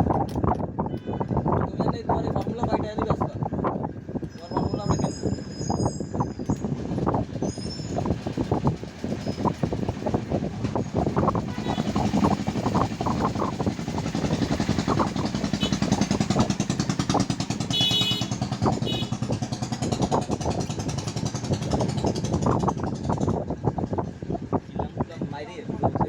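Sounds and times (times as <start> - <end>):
coil winding machine rattling: 4.2 - 23.4.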